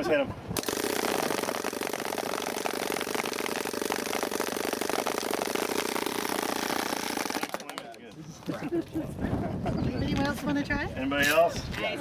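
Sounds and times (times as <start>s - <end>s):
paintball gun rapid fire: 0.6s - 8.0s.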